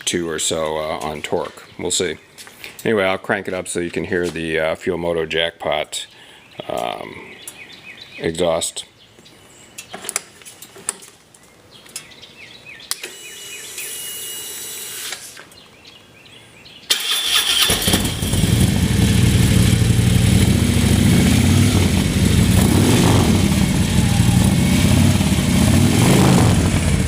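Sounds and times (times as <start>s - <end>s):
motorcycle engine starting and idling: 16.9s - 27.0s.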